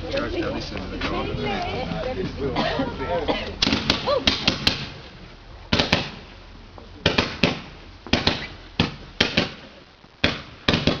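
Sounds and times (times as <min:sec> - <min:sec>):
fireworks cracking and banging: 0:03.6 - 0:11.0.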